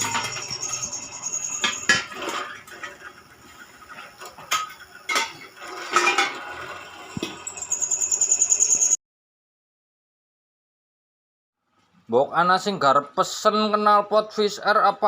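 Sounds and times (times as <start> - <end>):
metal pieces clanking: 0.0 - 3.1.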